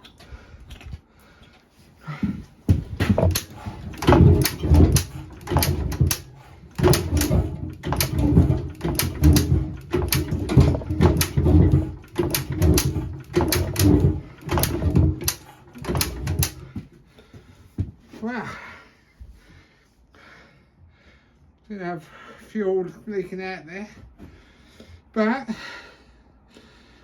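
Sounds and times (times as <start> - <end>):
engine being turned over by hand: 2.7 - 16.8.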